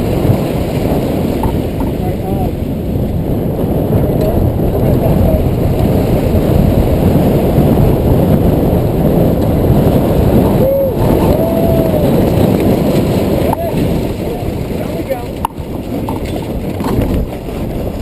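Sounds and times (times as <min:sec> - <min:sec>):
strong wind buffeting microphone: 0:00.0 - 0:18.0.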